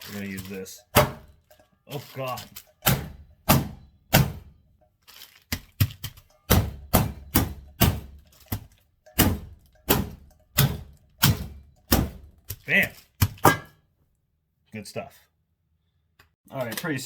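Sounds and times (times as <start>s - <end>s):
meat pounding thuds: 0.5s - 1.4s, 2.3s - 4.6s, 5.5s - 13.7s.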